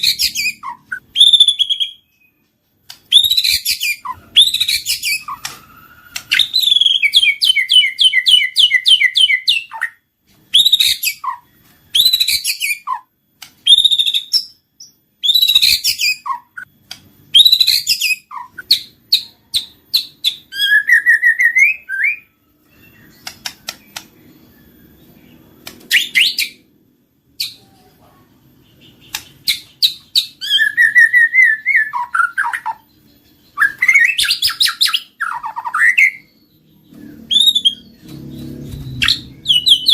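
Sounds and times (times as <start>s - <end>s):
bird singing whistled phrases: 3.1s - 13.0s, 17.3s - 26.6s, 28.8s - 39.9s.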